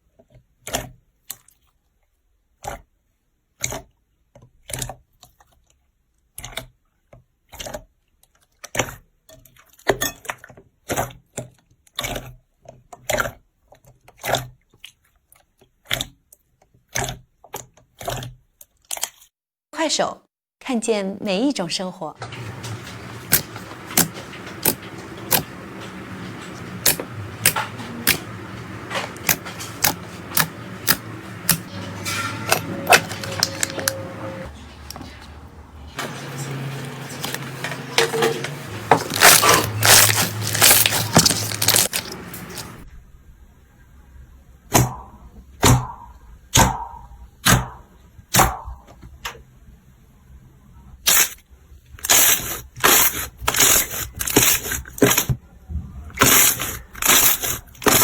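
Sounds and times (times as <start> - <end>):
slime popping and crackling: 39.1 - 42.6, 56.2 - 58.0.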